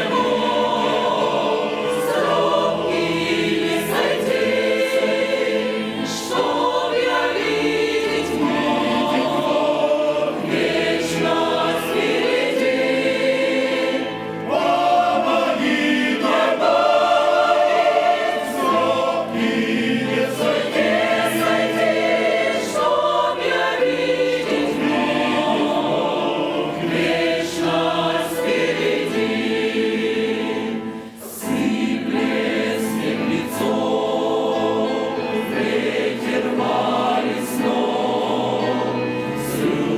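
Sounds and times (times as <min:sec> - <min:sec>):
church choir singing: 0:00.0 - 0:39.9.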